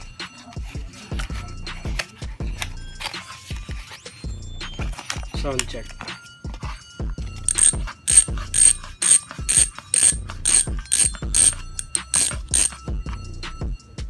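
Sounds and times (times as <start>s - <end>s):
bicycle freewheel ratcheting: 7.5s - 12.8s.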